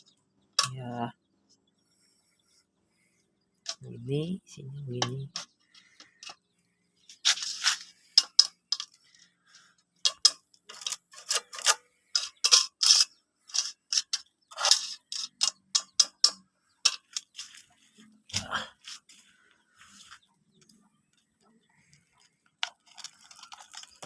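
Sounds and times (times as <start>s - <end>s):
sharp clicks and crackles: 7.0s - 19.0s, 20.6s - 24.0s.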